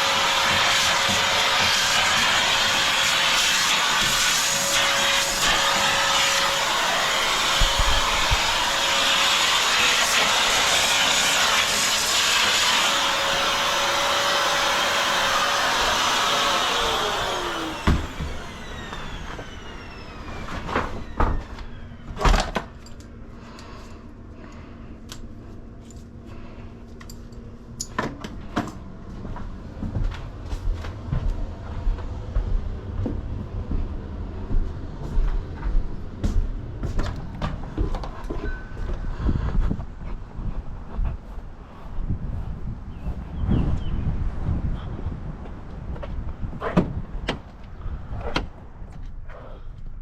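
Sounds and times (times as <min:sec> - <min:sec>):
vacuum cleaner running: 0:00.0 - 0:22.9, 0:28.3 - 0:39.6.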